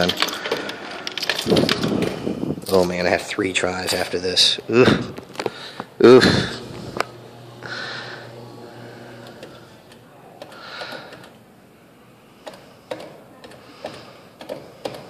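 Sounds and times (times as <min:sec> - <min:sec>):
low motor hum: 0:04.6 - 0:10.0.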